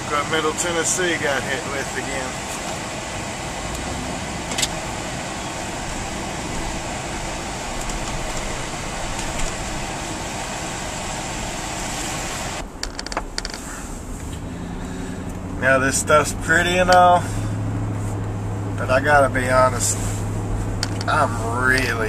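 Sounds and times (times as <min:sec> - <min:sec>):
car road and engine noise: 0:00.0 - 0:22.0
clicks: 0:20.8 - 0:21.2.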